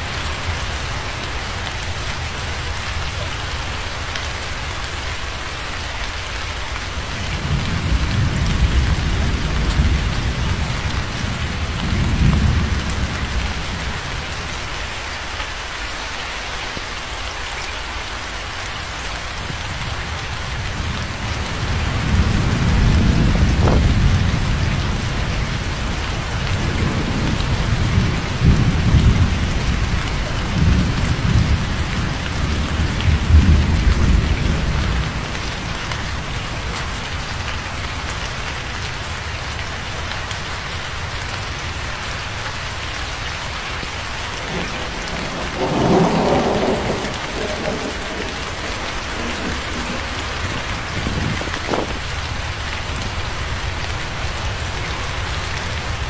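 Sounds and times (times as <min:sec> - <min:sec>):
rain falling on a surface: 0:00.0 - 0:56.0
thunder rumbling: 0:07.0 - 0:14.4, 0:19.5 - 0:37.0, 0:44.0 - 0:55.2.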